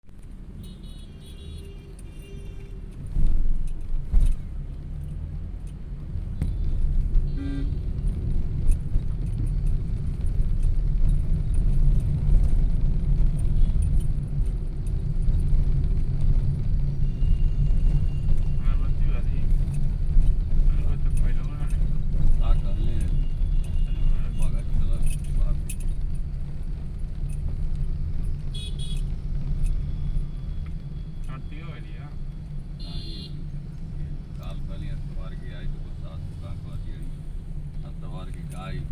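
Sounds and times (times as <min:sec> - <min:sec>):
road vehicle rumble: 0:00.0 - 0:38.9
horn toots: 0:06.4 - 0:07.9, 0:32.8 - 0:33.4.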